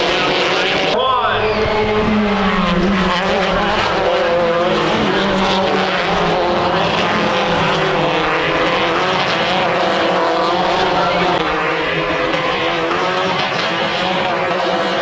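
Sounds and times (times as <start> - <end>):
race vehicle engine running hard: 0.0 - 15.0
tyre and wind noise: 1.2 - 4.1.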